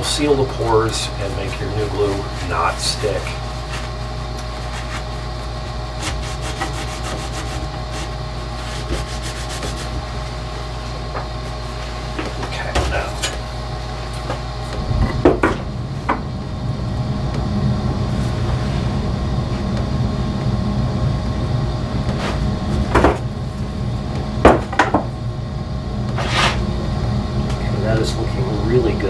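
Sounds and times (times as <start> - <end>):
low workshop hum: 0.0 - 29.0
sharp wooden knocks: 14.8 - 16.3, 24.4 - 25.1.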